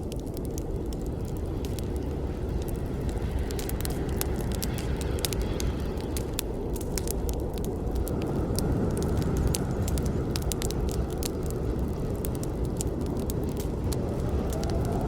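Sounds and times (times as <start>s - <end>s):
burning wood crackling and popping: 0.0s - 15.0s
flames rushing: 0.0s - 15.0s.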